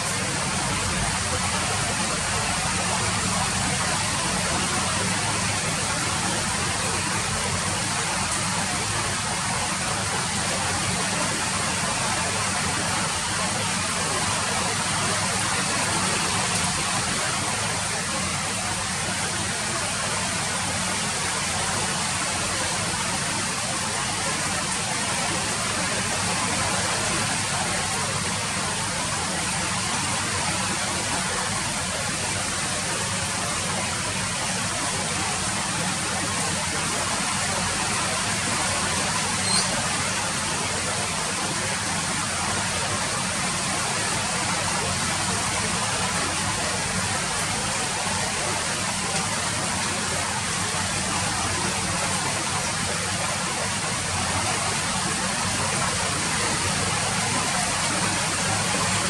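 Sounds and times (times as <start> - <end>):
steady rain hiss: 0.0 - 59.0
sharp drip: 39.4 - 39.8.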